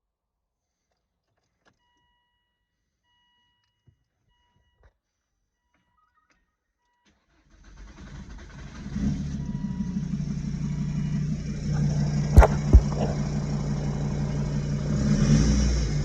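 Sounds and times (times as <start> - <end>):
car engine cranking and running: 7.6 - 16.0.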